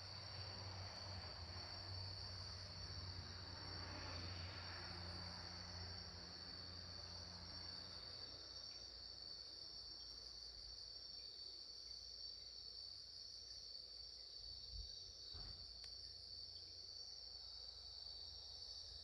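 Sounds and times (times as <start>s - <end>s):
faint click: 15.8s - 16.0s.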